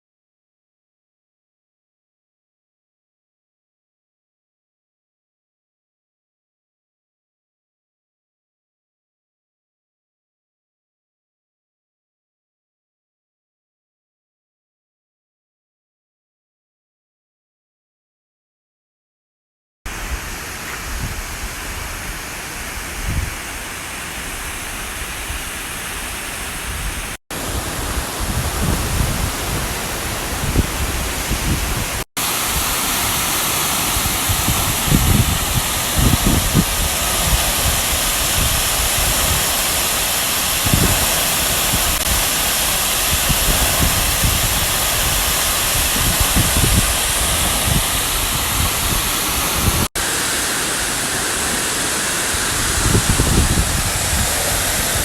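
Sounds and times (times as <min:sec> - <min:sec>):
creek water rushing: 0:19.9 - 0:55.0.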